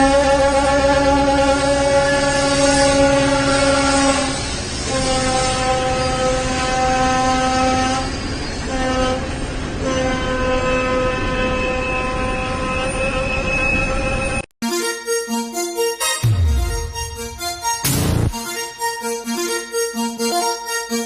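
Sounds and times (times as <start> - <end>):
moving train rumbling: 0.0 - 14.4
train horn blasts: 0.0 - 21.0.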